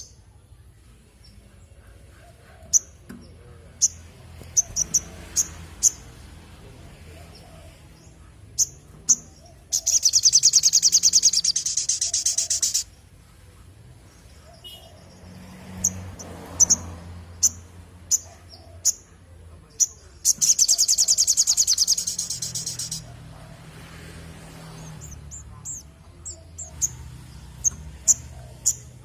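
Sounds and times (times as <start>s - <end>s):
bird chips: 8.6s - 12.9s, 19.8s - 23.2s.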